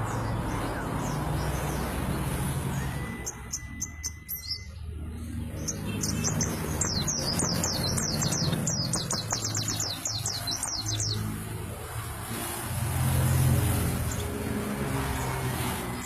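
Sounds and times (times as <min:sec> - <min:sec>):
bird singing: 0:00.0 - 0:11.4.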